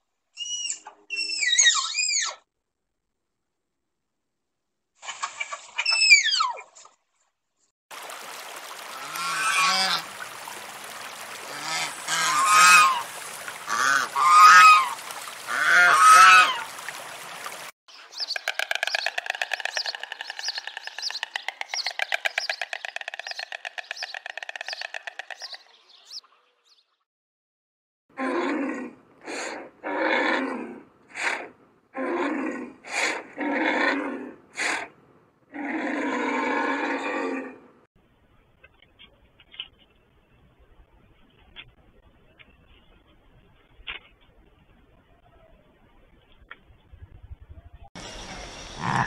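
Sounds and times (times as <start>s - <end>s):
fast rattling animal call: 18.0s - 25.7s.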